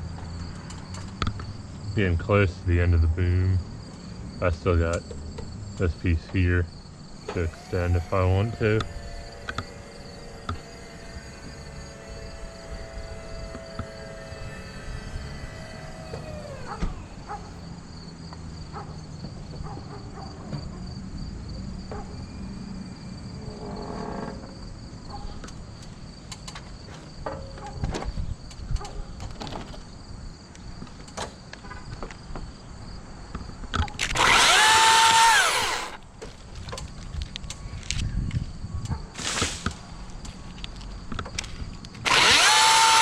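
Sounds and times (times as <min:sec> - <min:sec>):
power tool motor running: 0:07.2 - 0:17.7, 0:34.0 - 0:36.0, 0:42.0 - 0:43.0
small clicks and knocks: 0:25.4 - 0:29.8.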